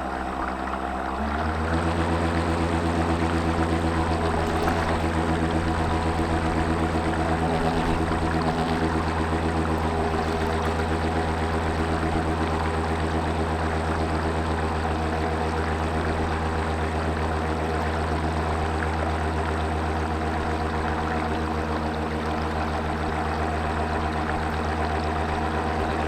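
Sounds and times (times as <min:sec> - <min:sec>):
model boat motor running: 0:00.0 - 0:26.0.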